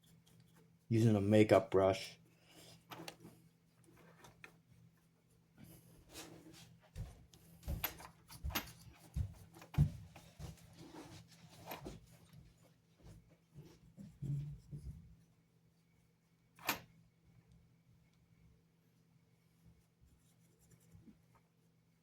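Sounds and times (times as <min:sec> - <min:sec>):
clicks and knocks of handled model: 0:02.9 - 0:04.6.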